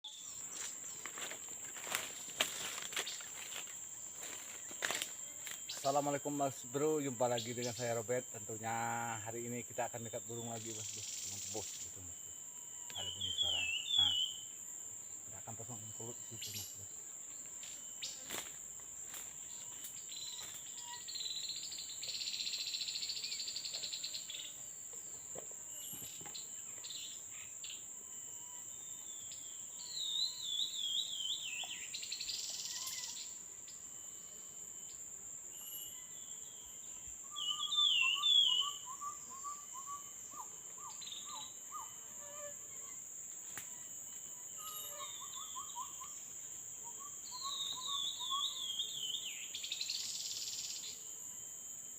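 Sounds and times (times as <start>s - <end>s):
harsh insect buzzing: 0.0s - 51.9s
high-pitched insect drone: 0.0s - 51.9s
birds trilling: 12.9s - 14.5s, 37.3s - 42.0s, 44.4s - 46.2s.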